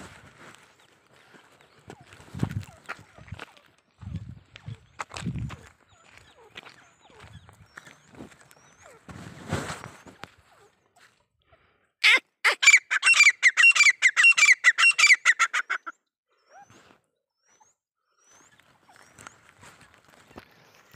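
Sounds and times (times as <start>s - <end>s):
bird harsh repeated calls: 12.0s - 16.8s.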